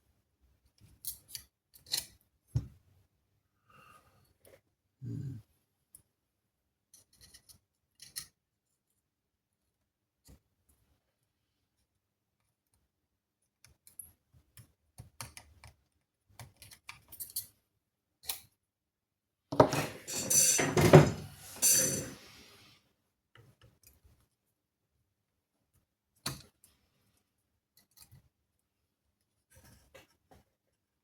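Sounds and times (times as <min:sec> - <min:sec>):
tools clattering and rattling: 0:19.6 - 0:22.2.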